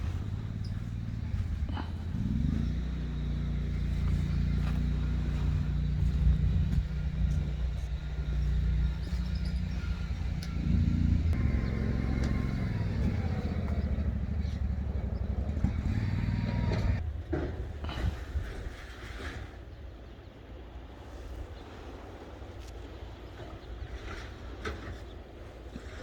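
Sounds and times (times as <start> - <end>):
vehicle engine rumbling: 0.0 - 17.9.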